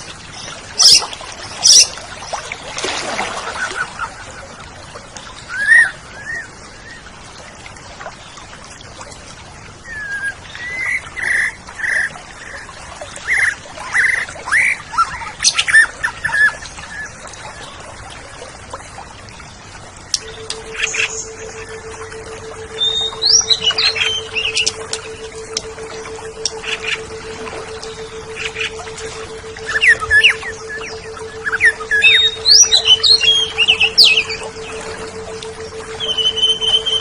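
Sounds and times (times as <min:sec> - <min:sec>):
bird singing whistled notes: 0:20.2 - 0:37.0.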